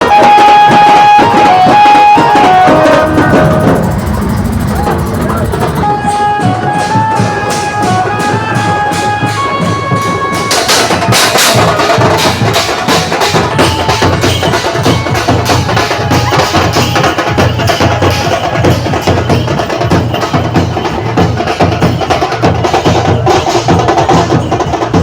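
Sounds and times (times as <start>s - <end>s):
melody instrument held notes: 0.0s - 18.7s
drums beating fast rhythm: 0.0s - 25.0s.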